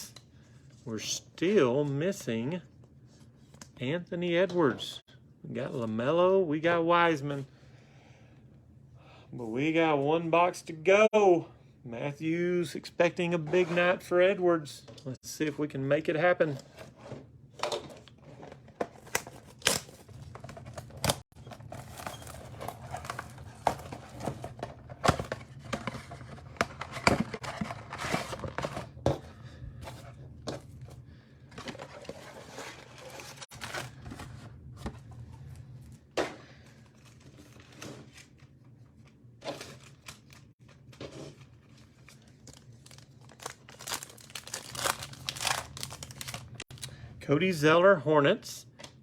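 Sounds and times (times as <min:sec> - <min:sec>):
plastic wrapping crinkling and tearing: 0:19.0 - 0:28.6, 0:41.6 - 0:46.9.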